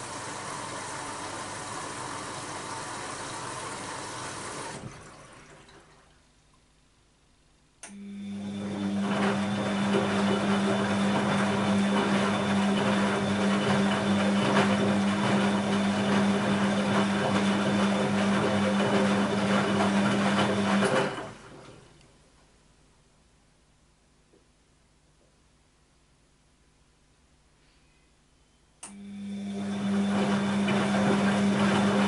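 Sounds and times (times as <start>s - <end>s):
washing machine running: 0.0s - 6.2s, 7.9s - 22.0s, 28.8s - 32.0s.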